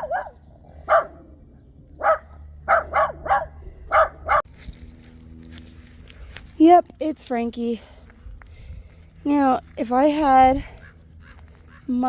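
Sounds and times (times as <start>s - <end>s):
dog barking: 0.0s - 1.2s, 2.0s - 4.5s.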